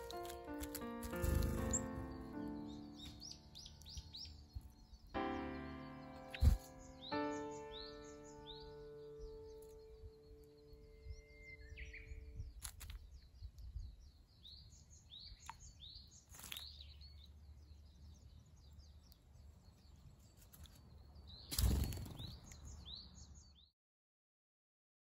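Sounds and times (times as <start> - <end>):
wings fluttering: 0.0 - 2.4, 6.3 - 6.7, 16.2 - 16.8, 20.4 - 22.8
small birds chirping: 0.0 - 23.7.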